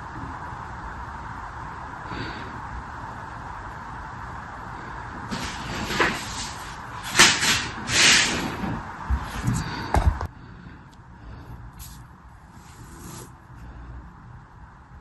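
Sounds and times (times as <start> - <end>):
steady hiss: 0.0 - 9.2, 11.7 - 13.7.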